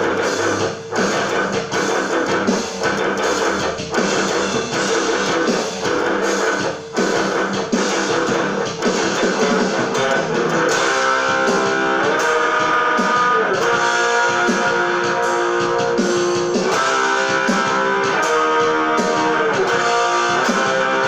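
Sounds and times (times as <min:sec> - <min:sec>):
guitar plucked and strummed: 0:00.0 - 0:21.0.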